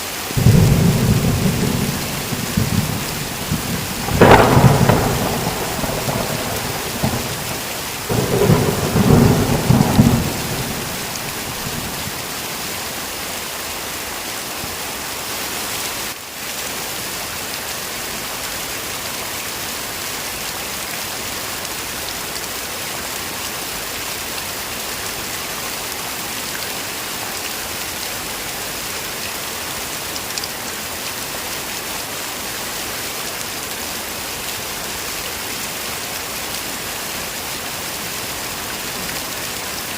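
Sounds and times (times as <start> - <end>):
heavy rain hissing: 0.0 - 16.2
thunder rumble: 0.4 - 12.2.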